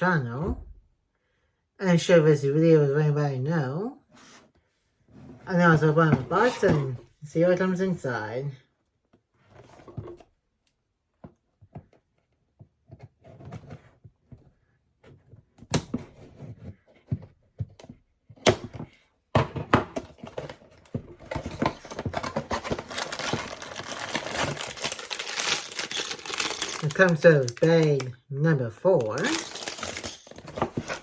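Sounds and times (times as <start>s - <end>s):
plastic bags crinkling: 21.3s - 28.1s, 28.8s - 31.0s.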